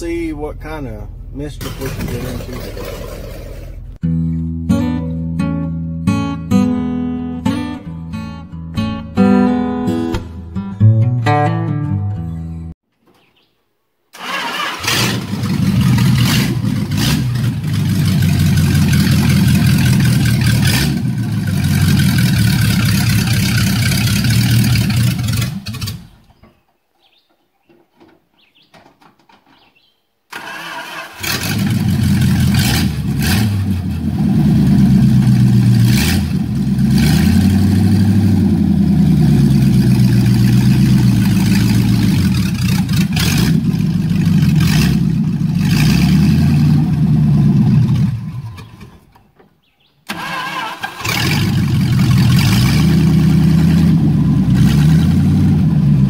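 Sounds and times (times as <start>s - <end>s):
car engine revving: 14.3s - 26.1s, 30.7s - 48.8s, 50.1s - 56.0s.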